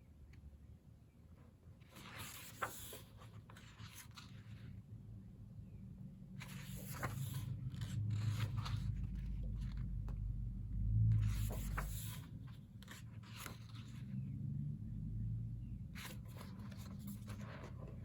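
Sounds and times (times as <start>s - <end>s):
book pages turning: 1.8s - 4.8s, 6.4s - 10.4s, 11.0s - 14.1s, 15.9s - 18.0s
low handling rumble: 6.6s - 12.2s.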